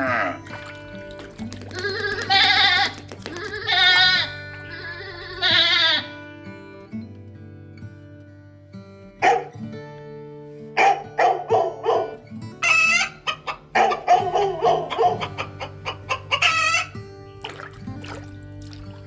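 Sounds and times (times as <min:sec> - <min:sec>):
chicken clucking: 0:12.9 - 0:16.9.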